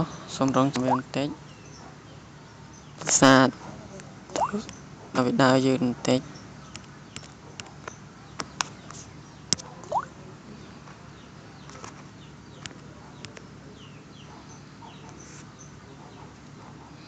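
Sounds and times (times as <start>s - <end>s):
faint bird calls: 9.8s - 10.7s.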